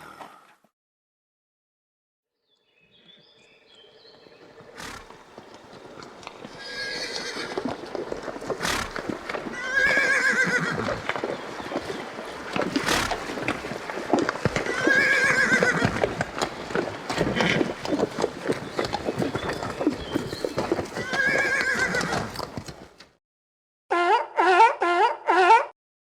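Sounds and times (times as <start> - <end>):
horse neighing: 4.6 - 16.2, 17.1 - 18.3, 20.8 - 22.6.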